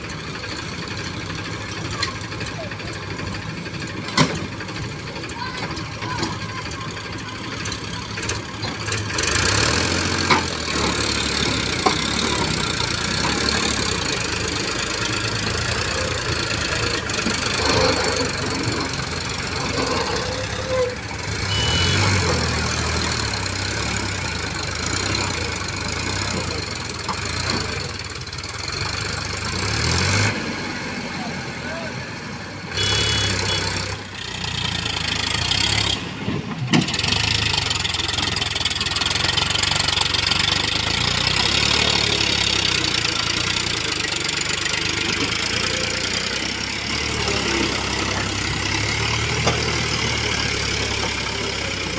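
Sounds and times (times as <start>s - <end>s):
heavy diesel engines running: 0.0s - 51.9s.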